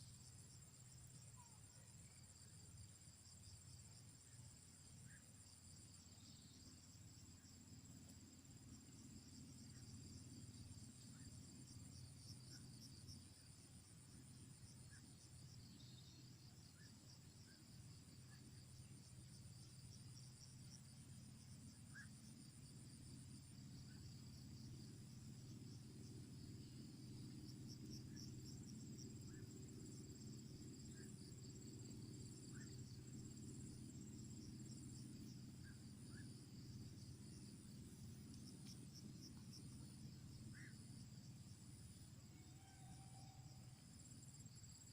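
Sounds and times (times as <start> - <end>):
crickets trilling: 0.0 - 44.9
low steady rumble: 17.3 - 44.9.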